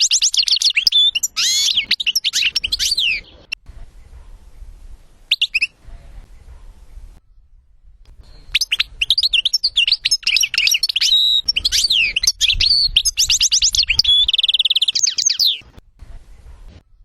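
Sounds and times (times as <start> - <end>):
rapid bird trill: 0.0 - 4.2, 5.3 - 5.8, 7.3 - 15.7
songbird singing: 0.0 - 17.0.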